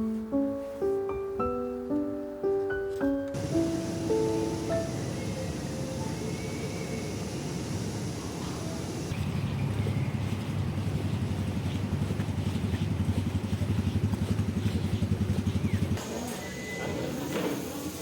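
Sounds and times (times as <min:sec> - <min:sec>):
motor running with fast throb: 0:03.4 - 0:16.2.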